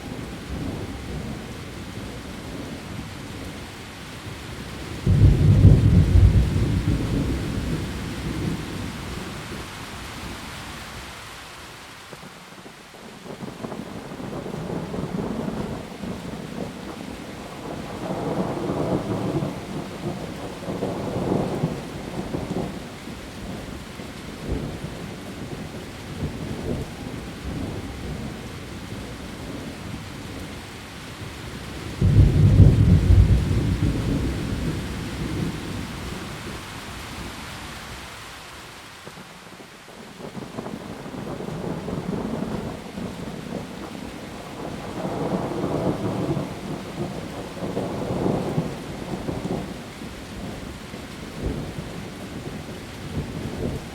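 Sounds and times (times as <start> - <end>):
heavy rain falling: 0.0 - 53.9
low thunder rumbles: 4.7 - 9.7, 31.7 - 36.6, 40.2 - 53.9
loud thunderclap: 5.0 - 8.6, 32.0 - 35.6.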